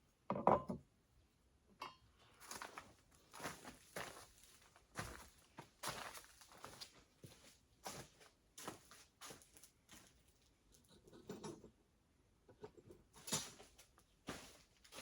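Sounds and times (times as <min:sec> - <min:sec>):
faint scuffs and light taps: 0:02.4 - 0:10.2.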